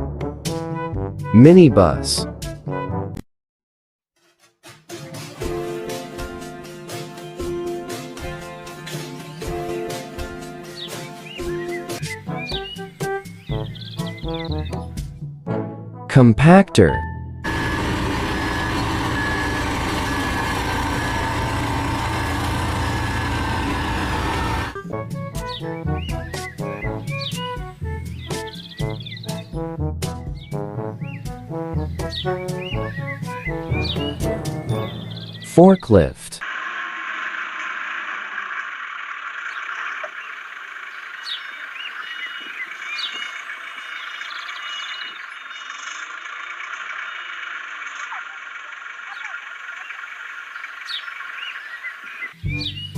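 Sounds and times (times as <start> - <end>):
compactor engine running: 17.4 - 24.8.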